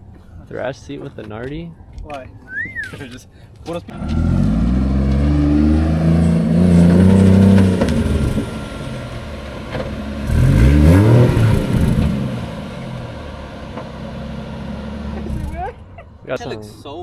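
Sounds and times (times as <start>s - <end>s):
car engine revving: 3.8s - 16.4s.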